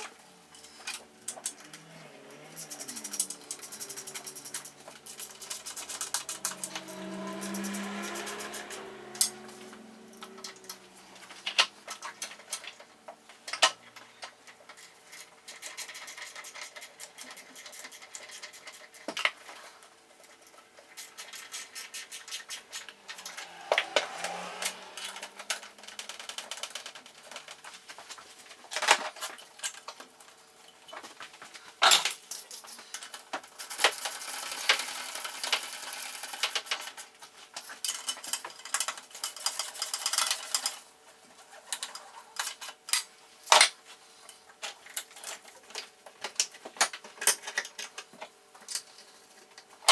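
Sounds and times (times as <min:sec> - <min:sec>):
rapid even clicking of tools: 0:00.0 - 0:09.5, 0:10.1 - 0:19.6, 0:20.2 - 0:30.1, 0:31.9 - 0:40.8.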